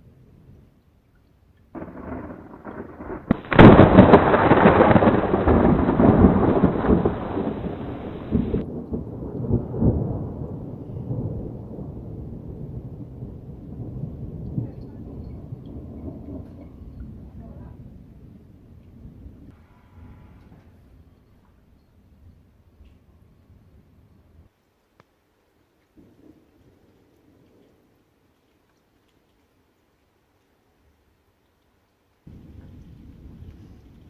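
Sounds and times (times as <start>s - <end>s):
thunder rumble and clap: 1.8s - 19.5s, 32.3s - 34.0s.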